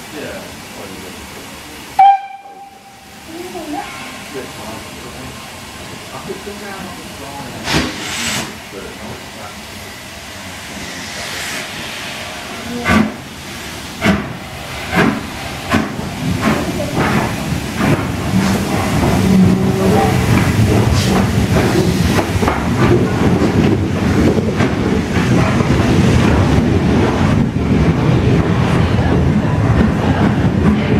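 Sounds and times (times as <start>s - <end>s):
steam locomotive exhaust chuffs: 9.8s - 27.6s
wheels clattering on rails: 14.0s - 30.9s.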